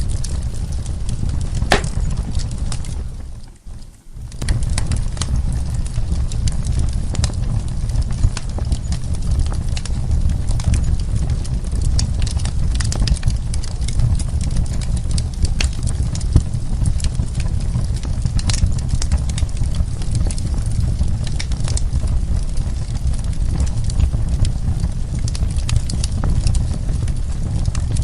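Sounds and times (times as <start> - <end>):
fire low rumble: 0.0 - 28.0
wood fire crackling: 0.0 - 28.0.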